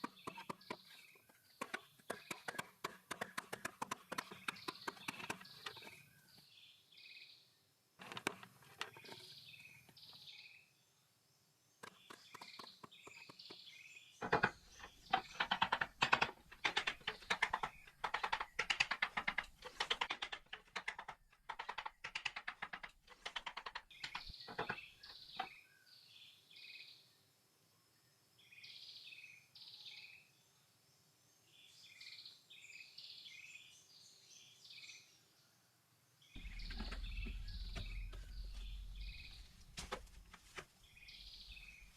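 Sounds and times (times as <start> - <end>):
hand tool knocks and scrapes: 0.0 - 6.0, 8.0 - 9.4, 11.8 - 21.0, 24.0 - 25.5, 36.4 - 40.7
birds chirping: 0.0 - 27.0, 36.2 - 41.9.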